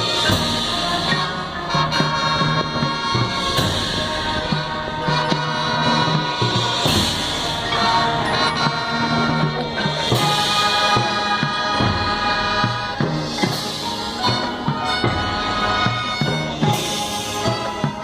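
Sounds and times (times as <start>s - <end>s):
drum line strokes: 0.0s - 18.0s
marching band playing: 0.0s - 18.0s.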